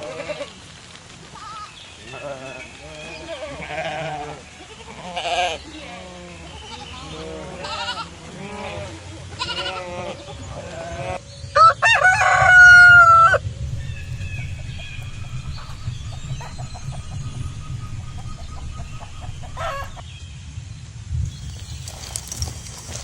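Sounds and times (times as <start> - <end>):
rooster crowing: 11.6 - 20.0
chicken clucking: 13.7 - 20.0
steady low rumble: 13.7 - 20.1.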